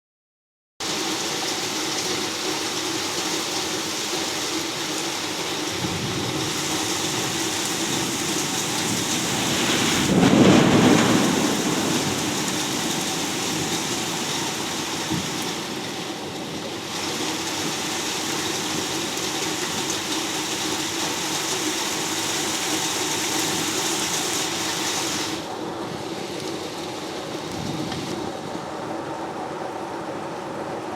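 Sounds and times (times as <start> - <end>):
heavy rain hissing: 0.8 - 29.3
thunder rumbling: 5.6 - 19.4, 25.3 - 29.0.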